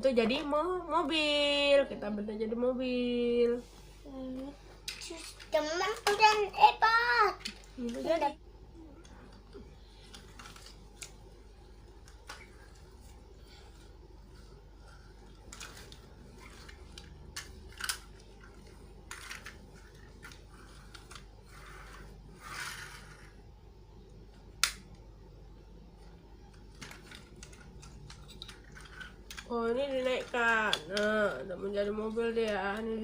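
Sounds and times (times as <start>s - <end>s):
plastic toy clicks and snaps: 24.6s - 25.0s.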